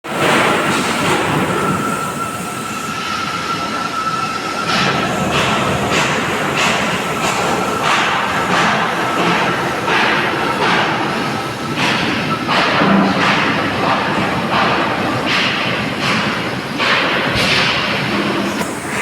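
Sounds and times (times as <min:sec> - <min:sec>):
welding arc crackling and hissing: 0:00.2 - 0:03.1, 0:16.8 - 0:19.0.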